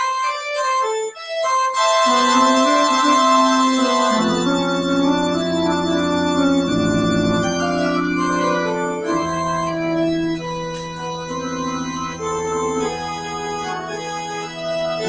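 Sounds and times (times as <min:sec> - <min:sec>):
organ playing slow chords: 0:01.4 - 0:15.0.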